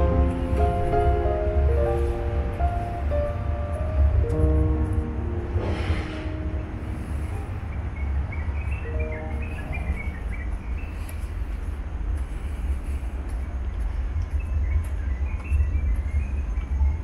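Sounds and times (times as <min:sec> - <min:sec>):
background music: 0:00.0 - 0:10.6
birds chirping: 0:00.0 - 0:17.0
steady low rumble: 0:00.0 - 0:17.0.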